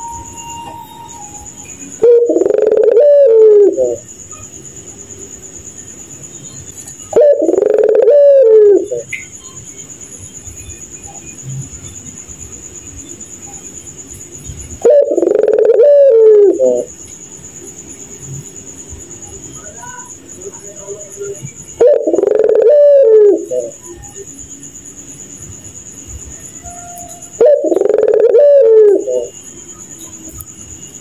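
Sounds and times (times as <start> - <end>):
faint high whine: 0.0 - 31.0
dove cooing: 1.2 - 4.1, 7.1 - 9.1, 14.8 - 16.9, 20.8 - 24.2, 27.2 - 29.4.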